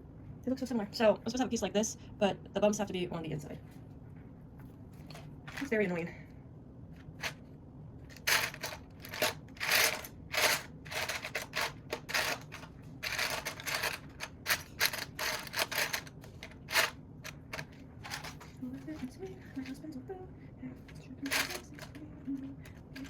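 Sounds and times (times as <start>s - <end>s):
plastic pieces clicking and rattling: 8.1s - 18.4s, 21.2s - 22.0s.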